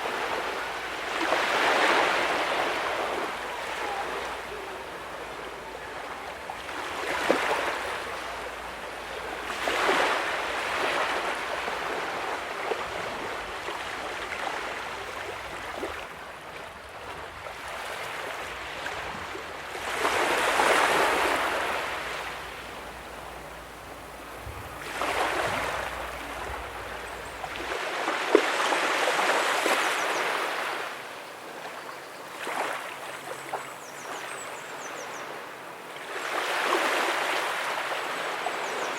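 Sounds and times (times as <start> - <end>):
small waves breaking on sand: 0.0 - 38.9
surf wash: 0.0 - 38.9.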